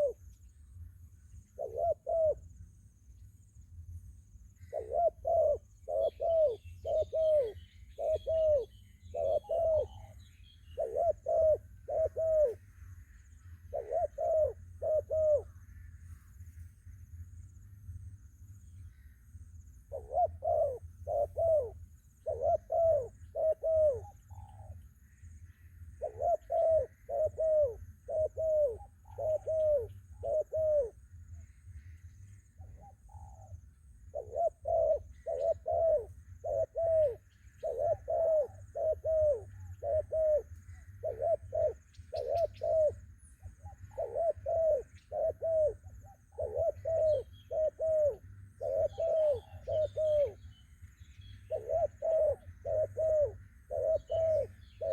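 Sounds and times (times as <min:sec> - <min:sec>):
doves cooing: 0:00.0 - 0:00.2, 0:01.5 - 0:02.5, 0:04.6 - 0:12.6, 0:13.6 - 0:15.6, 0:19.9 - 0:24.8, 0:25.9 - 0:31.0, 0:32.6 - 0:50.5, 0:51.3 - 0:54.9.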